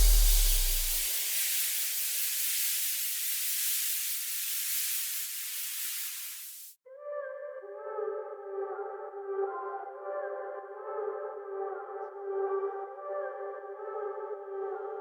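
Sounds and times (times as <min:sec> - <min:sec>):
white-noise sweep: 0:00.0 - 0:06.8.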